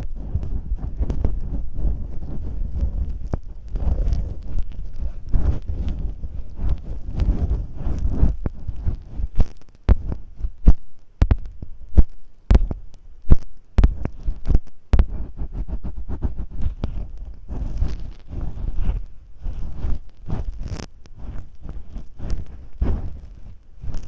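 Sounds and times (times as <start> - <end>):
tape scraping on microphone: 0.0 - 24.0
sticky clicks and pops: 2.7 - 19.0.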